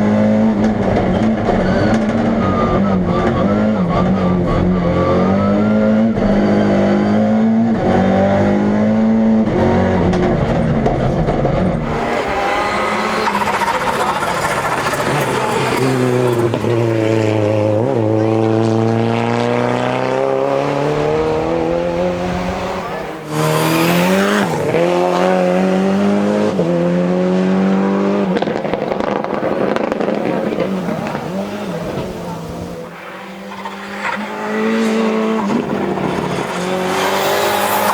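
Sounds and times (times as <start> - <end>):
race car engine under load: 0.0 - 37.9
exhaust crackling pops: 10.1 - 18.3, 28.2 - 37.9.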